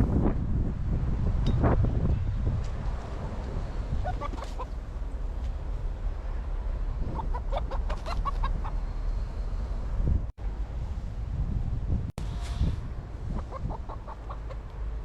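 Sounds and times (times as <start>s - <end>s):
low wind rumble: 0.0s - 15.0s
chicken clucking: 4.0s - 4.8s, 7.1s - 8.8s, 13.3s - 14.7s.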